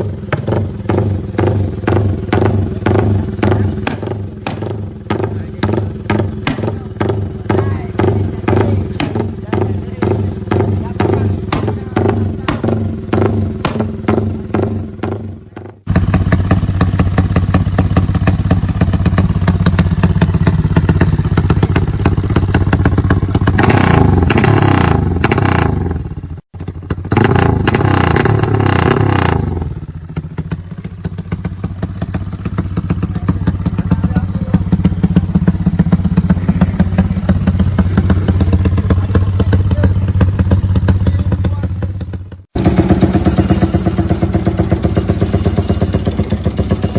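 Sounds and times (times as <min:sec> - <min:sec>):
motorcycle engine idling and revving: 0:00.0 - 0:46.9.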